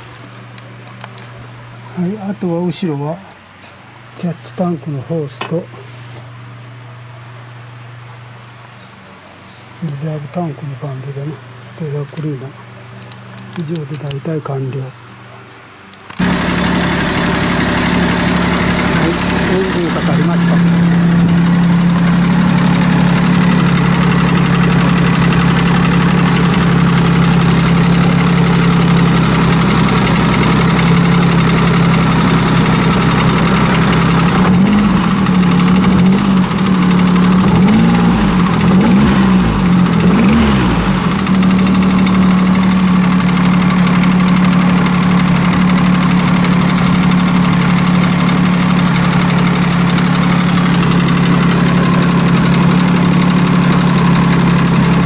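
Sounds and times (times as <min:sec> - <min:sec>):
car engine idling and revving: 0:11.1 - 0:55.0.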